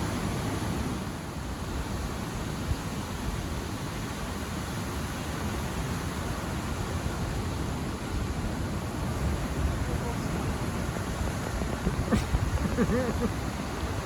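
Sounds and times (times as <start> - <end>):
ocean surf rushing: 4.8 - 14.0.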